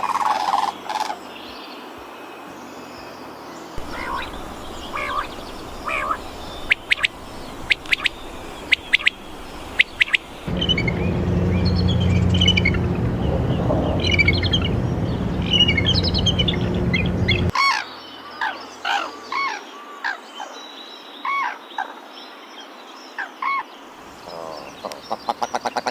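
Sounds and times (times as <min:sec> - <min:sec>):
birds chirping: 0:03.5 - 0:19.5
low steady hum: 0:03.8 - 0:17.5
rising and falling bird calls: 0:03.8 - 0:17.6.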